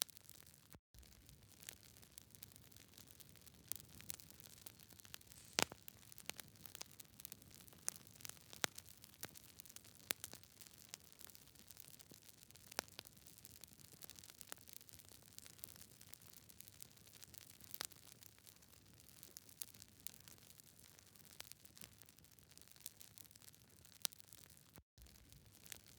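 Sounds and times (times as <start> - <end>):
campfire crackling: 1.6 - 10.2
soft hiss: 5.3 - 5.8.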